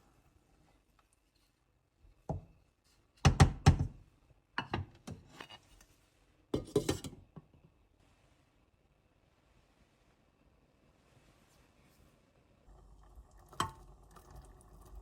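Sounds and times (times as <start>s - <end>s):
dishes and glassware clinking: 6.6s - 7.2s.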